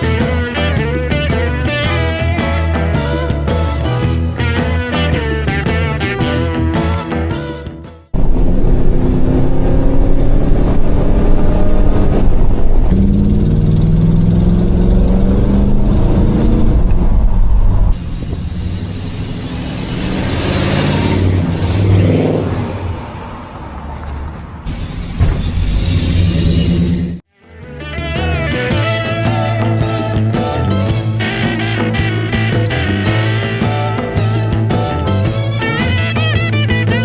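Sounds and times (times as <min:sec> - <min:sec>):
car engine revving: 0:08.2 - 0:27.2.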